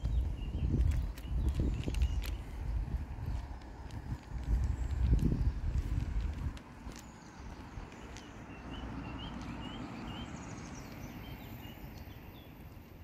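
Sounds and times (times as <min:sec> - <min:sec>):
small bird chirping: 0:00.0 - 0:03.4, 0:06.9 - 0:13.0
low rumble of wind: 0:00.0 - 0:13.0.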